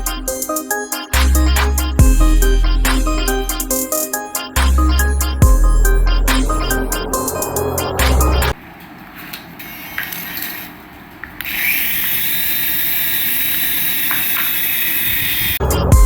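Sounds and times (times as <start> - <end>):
small electric motor whining: 11.4 - 15.6.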